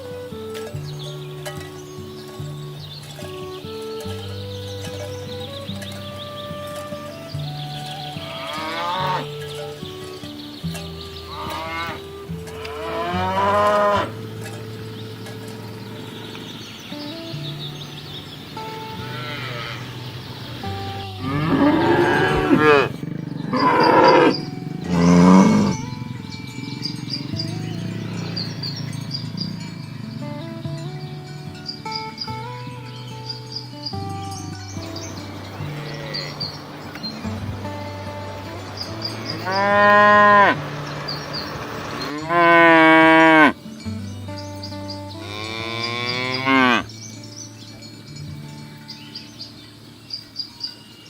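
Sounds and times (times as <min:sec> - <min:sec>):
cows mooing: 0:07.9 - 0:10.2, 0:11.2 - 0:16.6, 0:18.6 - 0:30.6, 0:34.8 - 0:43.6, 0:45.1 - 0:47.0.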